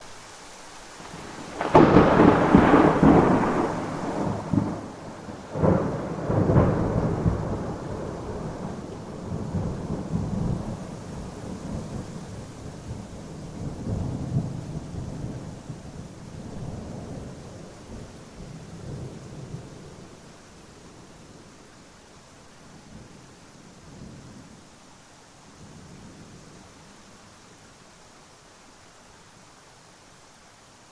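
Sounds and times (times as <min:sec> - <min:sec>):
steady rain: 0:00.0 - 0:30.9
thunder rumbling: 0:01.0 - 0:20.2.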